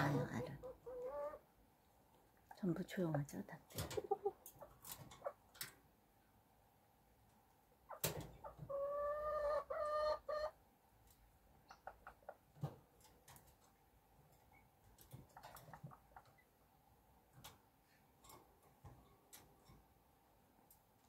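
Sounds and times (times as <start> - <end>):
chicken calling: 8.6 - 10.6
faint ticks and scratches: 11.0 - 16.6, 17.3 - 20.0.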